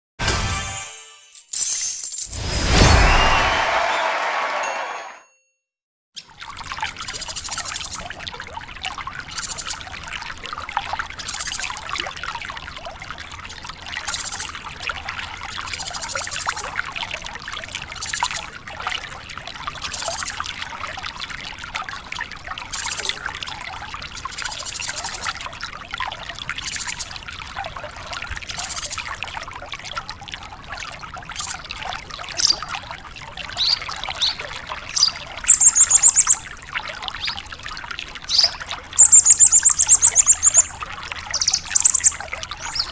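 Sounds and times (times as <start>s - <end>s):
water trickling: 6.2s - 42.9s
lark chirping and trilling: 33.6s - 34.4s, 35.0s - 36.4s, 38.3s - 42.9s.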